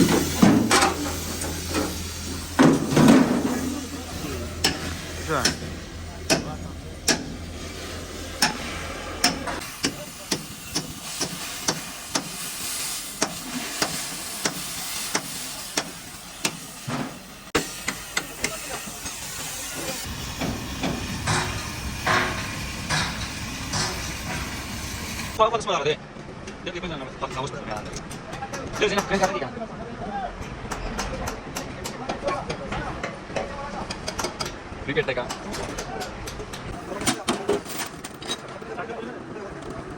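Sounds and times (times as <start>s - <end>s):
steady hiss: 0.0s - 25.4s
hammer blows on metal: 20.2s - 24.7s.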